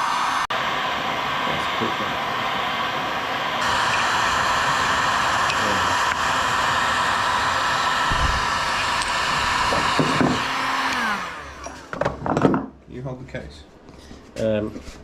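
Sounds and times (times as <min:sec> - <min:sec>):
heat gun blowing: 0:00.0 - 0:12.0.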